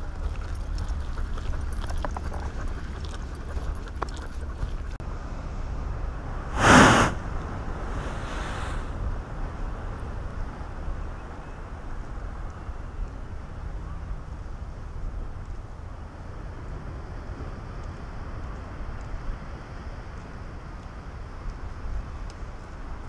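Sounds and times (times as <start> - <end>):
surf rumble: 5.1 - 11.0
wind on microphone: 5.6 - 13.5
blowhole whoosh of air and spray: 6.5 - 9.0.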